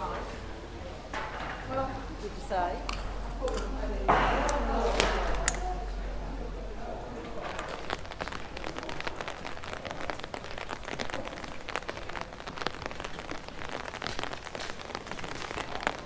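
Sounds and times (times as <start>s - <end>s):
rain drops ticking: 0.0s - 16.0s
steady rain hiss: 0.0s - 16.0s.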